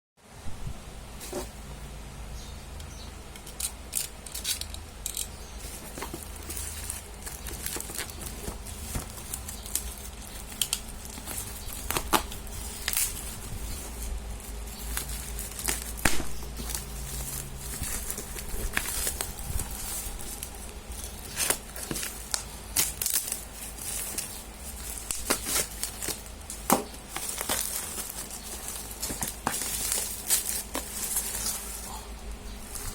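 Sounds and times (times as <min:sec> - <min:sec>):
low steady hum: 0:00.2 - 0:32.9
packaging crinkling: 0:03.4 - 0:32.9.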